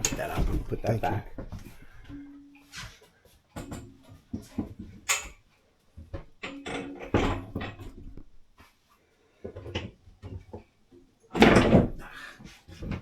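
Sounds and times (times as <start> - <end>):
storage lids knocking: 0.0 - 2.3.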